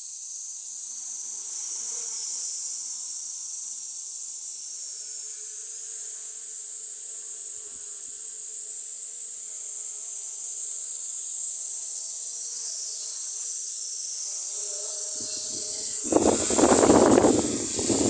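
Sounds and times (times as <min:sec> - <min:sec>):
drone propellers buzzing: 0:15.2 - 0:18.0.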